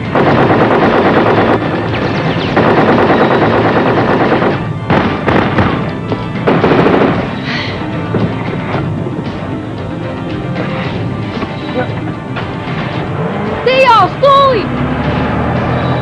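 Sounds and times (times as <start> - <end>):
dramatic action music: 0.0 - 16.0
automatic gunfire: 0.1 - 5.8, 6.4 - 7.4.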